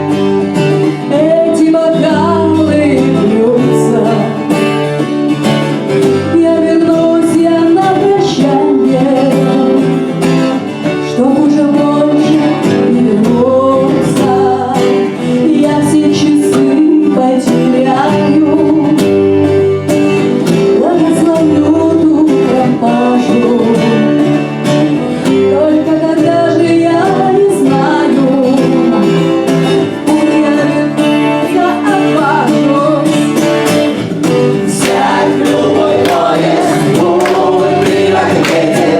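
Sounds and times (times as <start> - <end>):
strummed acoustic guitar: 0.0 - 38.9
people singing: 34.3 - 38.9.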